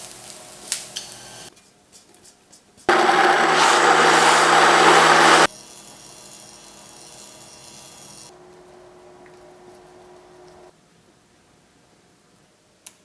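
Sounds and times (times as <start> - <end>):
electric blender running: 2.9 - 5.5.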